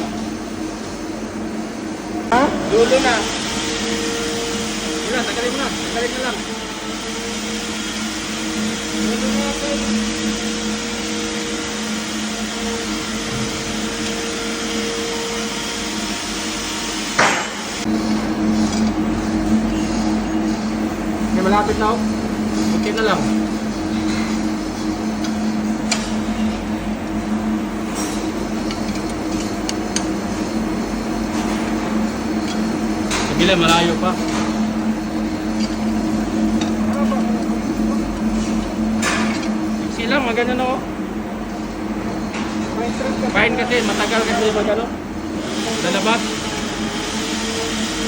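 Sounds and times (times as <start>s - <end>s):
machinery drone: 0.0s - 48.0s.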